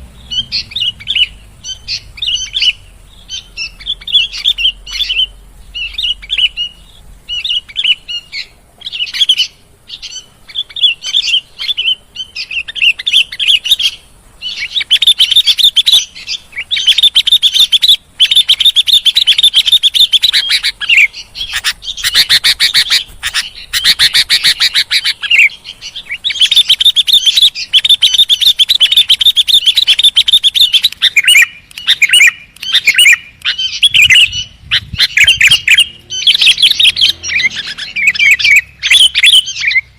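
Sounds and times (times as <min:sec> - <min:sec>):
bulbul singing and chattering: 0:00.0 - 0:39.9.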